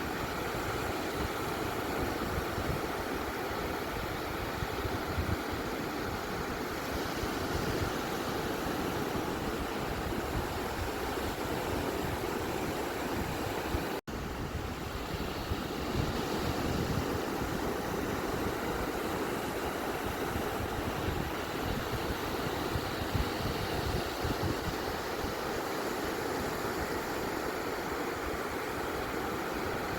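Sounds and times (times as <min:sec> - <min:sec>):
ocean waves washing onto beach: 0:00.0 - 0:29.9.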